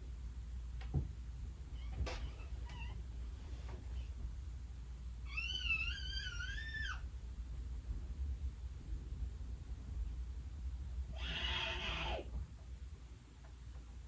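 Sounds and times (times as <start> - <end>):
steady low hum: 0.0 - 14.0
cat meowing: 5.3 - 7.0, 11.2 - 12.3.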